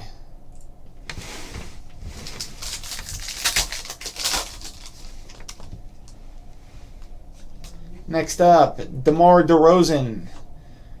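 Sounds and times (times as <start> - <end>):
card pack wrapper crackling: 2.2 - 5.8.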